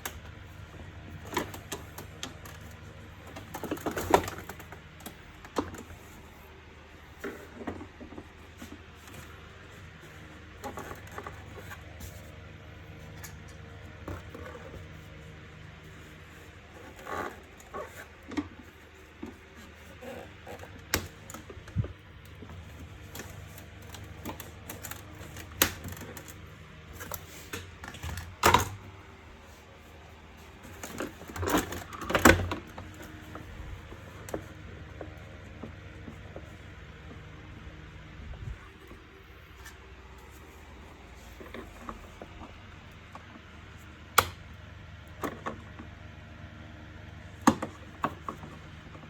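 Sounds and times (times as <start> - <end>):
plastic parts clicking and knocking: 0.0 - 6.4, 16.7 - 29.0, 30.6 - 36.6, 44.1 - 44.5, 47.4 - 49.0.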